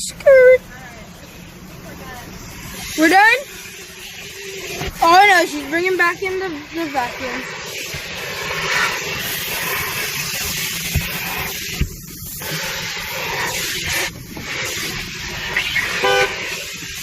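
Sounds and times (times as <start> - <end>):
vacuum cleaner hissing: 1.2 - 17.0
car horn beep: 15.9 - 16.5.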